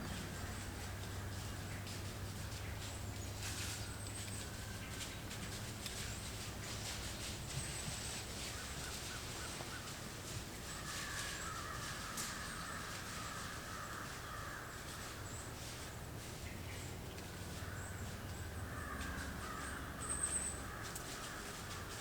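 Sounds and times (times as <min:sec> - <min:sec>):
low background rumble: 0:00.0 - 0:08.4
crows cawing: 0:10.7 - 0:15.2, 0:17.6 - 0:22.0.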